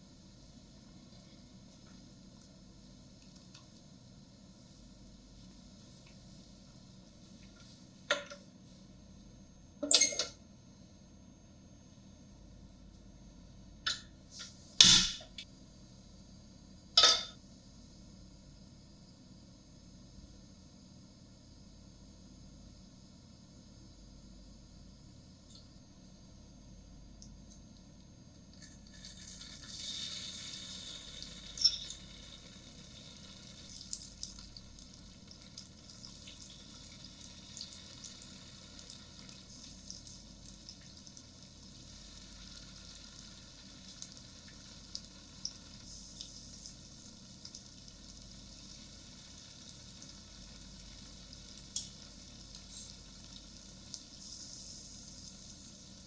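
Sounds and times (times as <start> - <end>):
food sizzling in oil: 28.9 - 56.0.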